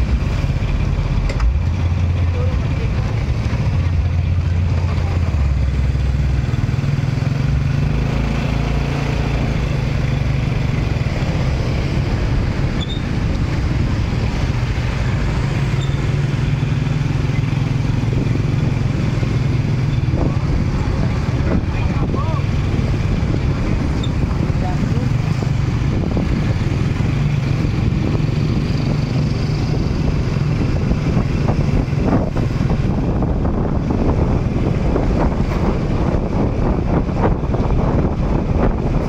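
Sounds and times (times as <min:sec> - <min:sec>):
engine drone: 0:00.0 - 0:39.0
street noise: 0:00.0 - 0:39.0.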